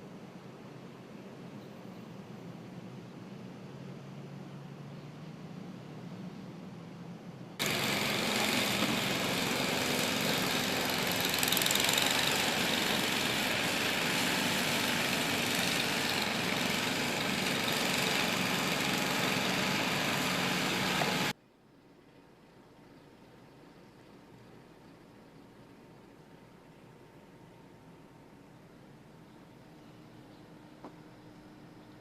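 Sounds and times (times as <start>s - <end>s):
engine running: 7.6s - 21.3s.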